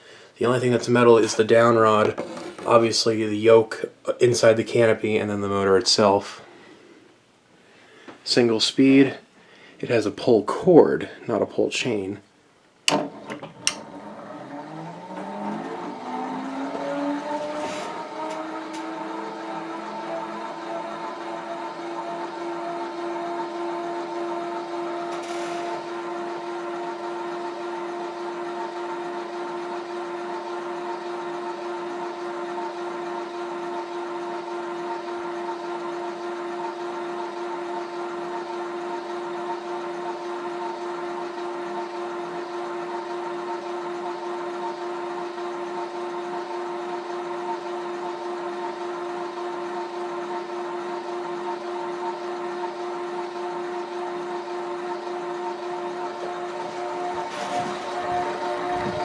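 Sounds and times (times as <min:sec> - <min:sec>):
ceiling fan motor whine: 0:11.8 - 0:59.0.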